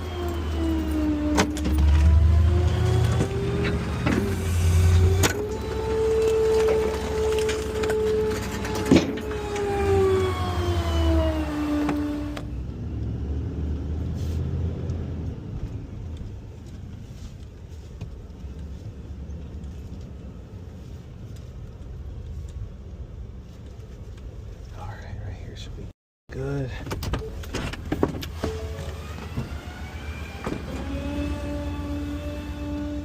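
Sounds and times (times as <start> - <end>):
hydraulics whining: 0.0 - 18.6, 26.9 - 33.0
truck engine running low: 0.0 - 22.2.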